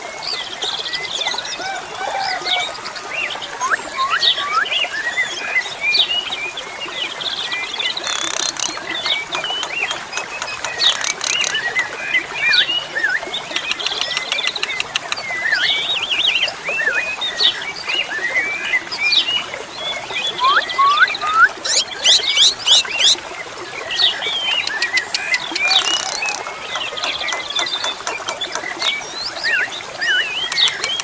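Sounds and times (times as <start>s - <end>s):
starlings singing: 7.4s - 23.2s, 23.9s - 31.0s.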